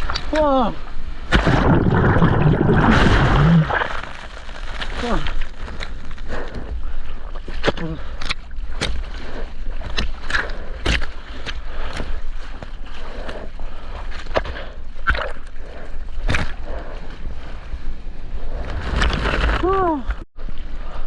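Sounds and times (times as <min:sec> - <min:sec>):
seawater sloshing and splashing: 0:01.1 - 0:06.1
deep rumble: 0:01.1 - 0:20.2
sharp splashes: 0:01.2 - 0:05.4.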